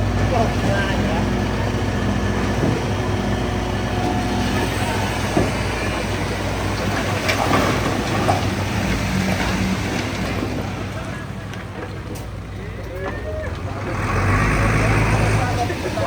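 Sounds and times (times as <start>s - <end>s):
bulldozer diesel engine: 0.0s - 16.0s
steel tracks clanking and squealing: 1.8s - 16.0s.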